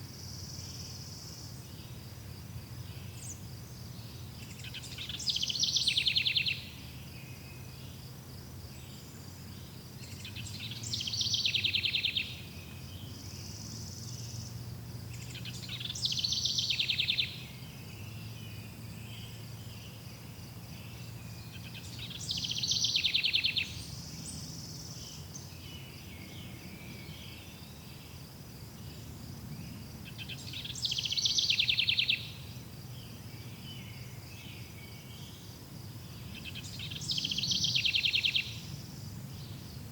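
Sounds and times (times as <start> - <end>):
crickets chirping: 0.0 - 39.9
songbird trilling: 4.1 - 7.6, 10.0 - 14.5, 15.1 - 18.2, 20.8 - 26.6, 30.0 - 32.5, 36.2 - 38.7.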